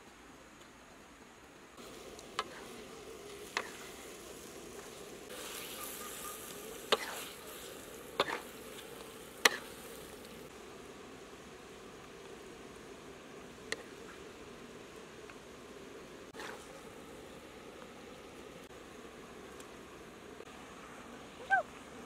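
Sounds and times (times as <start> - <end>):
food sizzling in a wok: 1.8 - 17.7.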